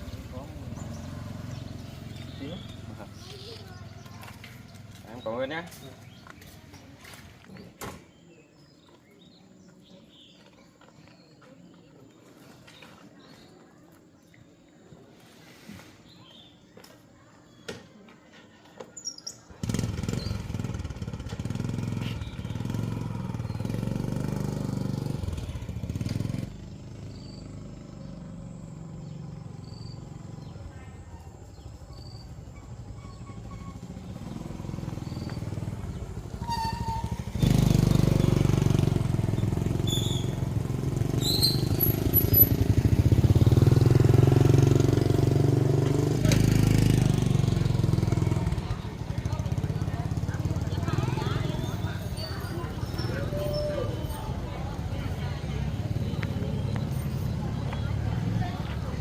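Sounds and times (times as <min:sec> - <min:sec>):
vehicle engine running: 0:00.0 - 0:07.0, 0:19.6 - 0:59.0.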